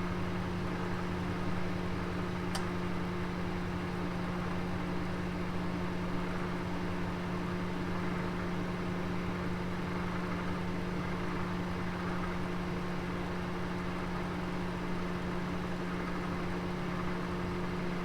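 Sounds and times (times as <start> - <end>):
oven humming: 0.2 - 5.3.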